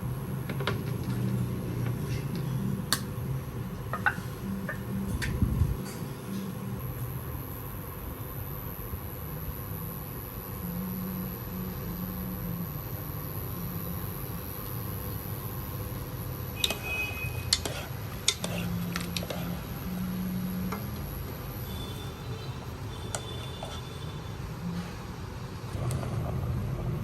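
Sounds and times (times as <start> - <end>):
steady low rumble: 3.4 - 5.8.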